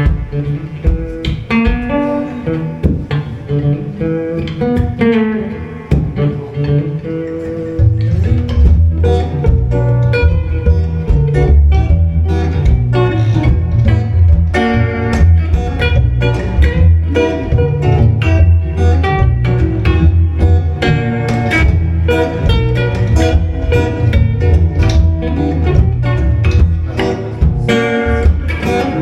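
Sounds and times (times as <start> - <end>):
plucked and strummed guitar: 0.0 - 29.0
steady bass line: 7.6 - 29.0.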